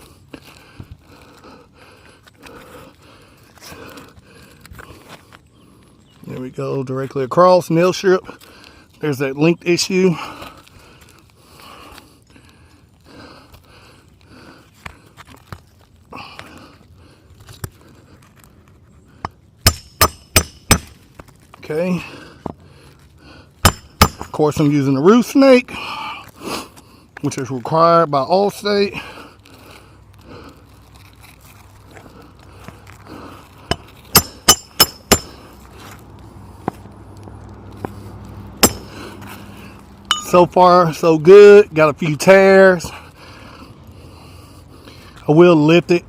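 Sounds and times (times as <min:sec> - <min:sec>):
roof shingles crinkling and crunching: 0:00.0 - 0:46.0
metal tool clinking on metal: 0:33.7 - 0:35.4, 0:38.6 - 0:39.0, 0:40.1 - 0:40.5.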